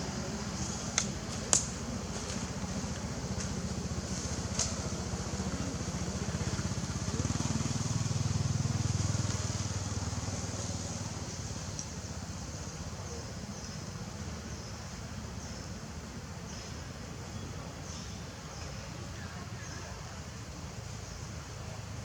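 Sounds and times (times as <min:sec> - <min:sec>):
motor engine running: 0:00.0 - 0:12.5.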